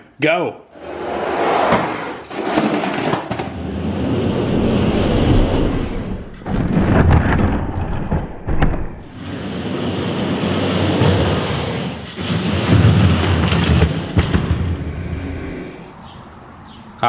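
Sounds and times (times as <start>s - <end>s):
sharp clatters: 1.7s - 3.6s
toy trucks rolling down track: 1.8s - 3.7s.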